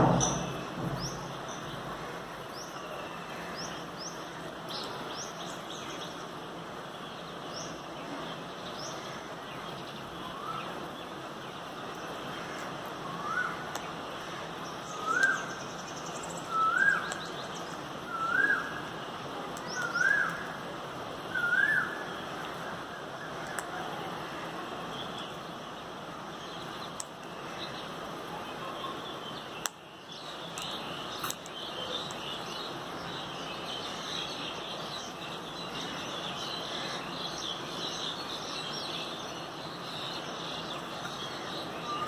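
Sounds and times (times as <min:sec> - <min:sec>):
lower rising bird call: 0:18.1 - 0:18.9, 0:21.3 - 0:23.4.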